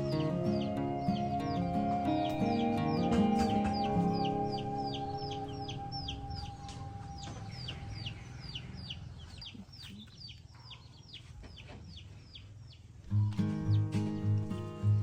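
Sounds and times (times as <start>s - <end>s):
background music: 0.0s - 8.4s
bird chirping: 0.0s - 15.0s.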